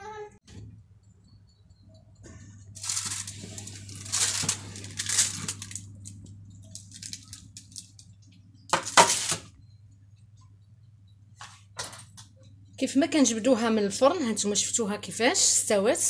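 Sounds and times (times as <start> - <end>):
steady low hum: 0.5 - 16.0
parchment paper rustling: 2.7 - 8.0.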